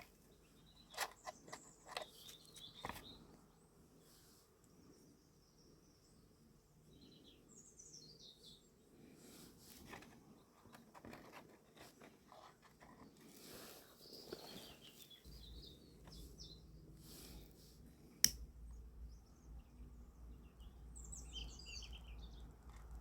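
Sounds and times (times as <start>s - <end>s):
faint bird chirps: 0.0s - 9.3s, 9.9s - 17.5s
soft rustling: 9.0s - 16.4s.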